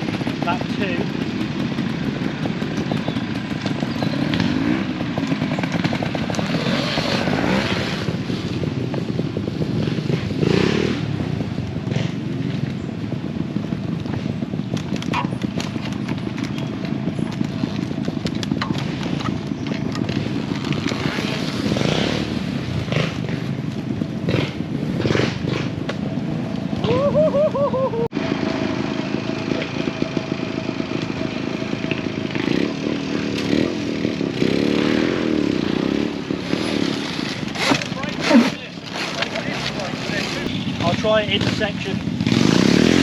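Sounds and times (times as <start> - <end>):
motorcycle engine running: 0.0 - 43.0
rising engine whines: 0.0 - 43.0
clattering ticks: 14.0 - 21.0.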